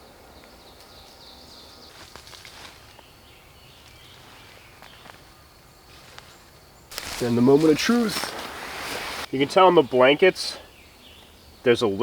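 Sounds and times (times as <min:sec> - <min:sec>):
soft rustles: 0:05.9 - 0:09.4.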